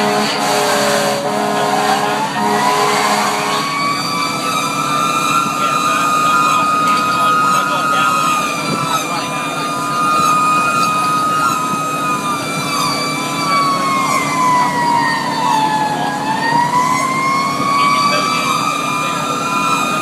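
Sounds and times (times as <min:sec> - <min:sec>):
fast siren sweeps: 0:00.0 - 0:20.0
mechanical siren wailing: 0:00.0 - 0:20.0
truck engine: 0:00.0 - 0:20.0.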